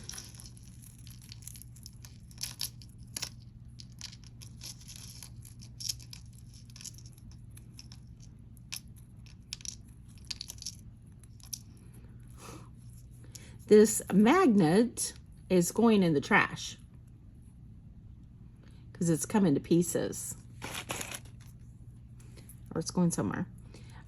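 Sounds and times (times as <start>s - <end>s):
jewelry pieces clicking: 0.0s - 11.7s.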